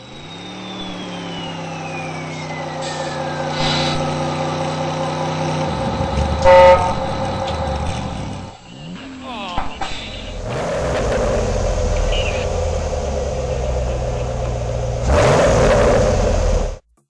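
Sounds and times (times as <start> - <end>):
truck engine running: 0.0 - 16.9
truck horn blast: 6.4 - 8.3, 9.6 - 16.8.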